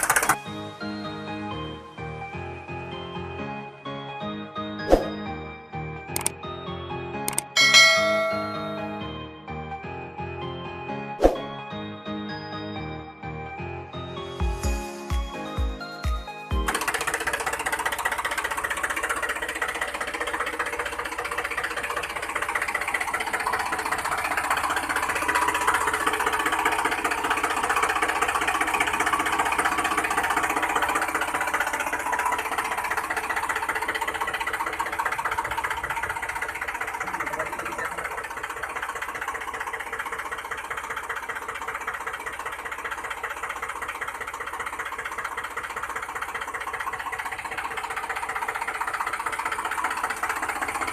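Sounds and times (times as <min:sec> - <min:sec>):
small motor buzzing rattle: 0:00.0 - 0:00.4, 0:16.7 - 0:50.9.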